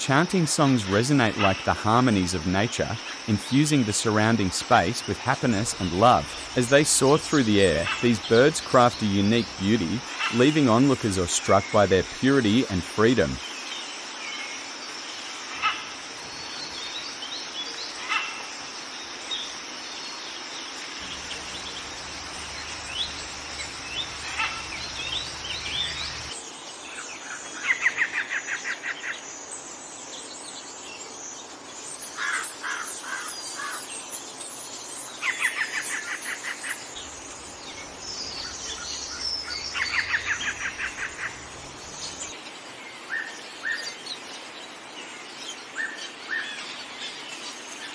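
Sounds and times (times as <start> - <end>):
birds singing and chirping: 0.2 - 47.9
rapid bird trills: 21.0 - 26.4, 32.1 - 34.0, 34.7 - 42.4.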